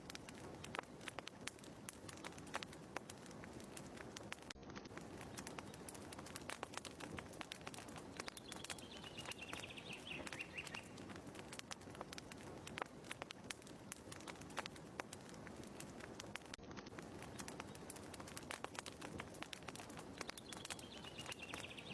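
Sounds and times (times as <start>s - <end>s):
wood fire crackling: 0.0s - 21.9s
bird call: 8.2s - 11.0s, 20.3s - 21.9s.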